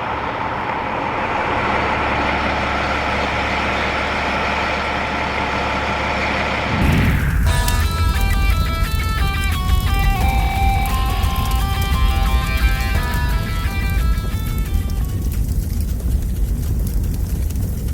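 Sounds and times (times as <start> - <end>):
fire truck engine running: 0.0 - 17.9
guitar music: 7.4 - 15.4.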